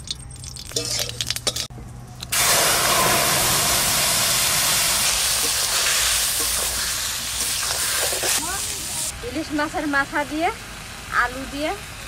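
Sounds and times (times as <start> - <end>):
food sizzling in hot oil: 2.3 - 9.1.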